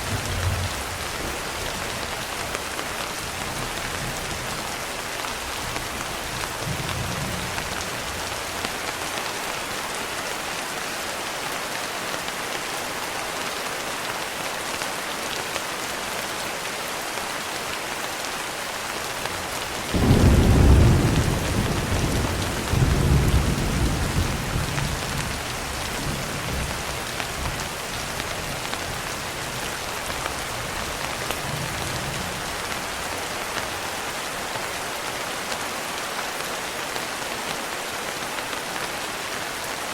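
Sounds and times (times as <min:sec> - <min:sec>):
thunder rumbling: 0:00.0 - 0:02.1, 0:19.7 - 0:29.6
rain on a window: 0:00.0 - 0:39.9.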